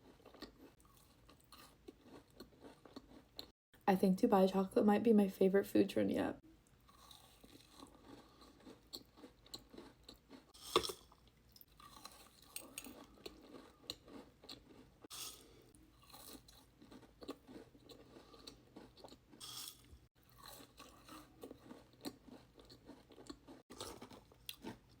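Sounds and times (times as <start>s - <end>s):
chewing and crunching cookie: 0.0s - 3.6s, 6.5s - 25.0s.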